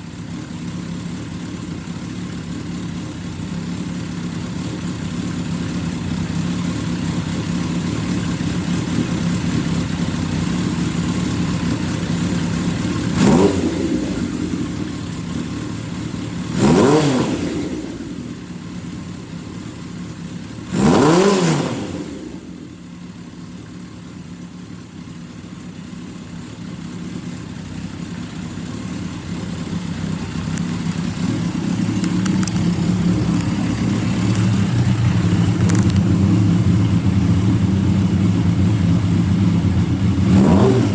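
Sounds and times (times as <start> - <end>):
motorcycle engine idling: 0.0 - 40.9
engine revving: 13.1 - 14.9, 16.5 - 18.3, 20.7 - 22.6, 30.2 - 40.9.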